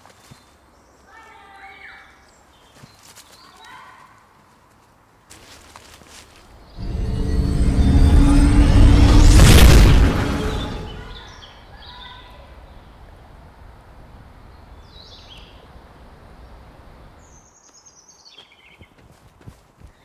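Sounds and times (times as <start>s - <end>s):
faint low rumble: 6.7s - 11.3s
boom: 6.8s - 11.3s
birds singing: 14.5s - 15.7s, 17.2s - 19.1s.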